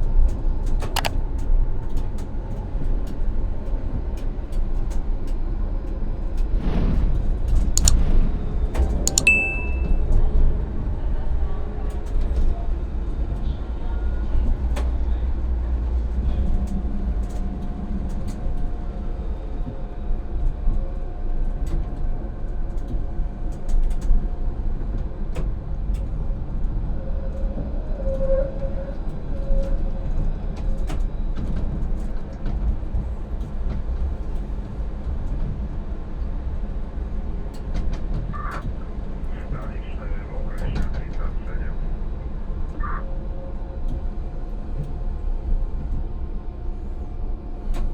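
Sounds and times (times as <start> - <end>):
sharp clicks: 0.8 - 1.2, 7.8 - 8.1, 9.0 - 9.8
tram wheels rumbling on rails: 9.8 - 39.4.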